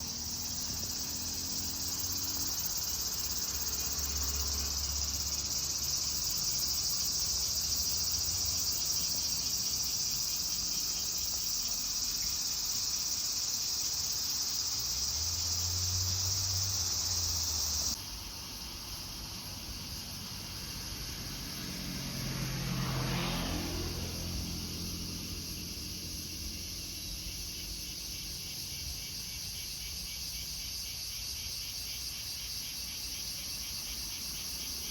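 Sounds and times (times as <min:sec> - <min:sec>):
car passing: 0:00.0 - 0:18.0, 0:19.2 - 0:27.1
crickets chirping: 0:00.0 - 0:34.9.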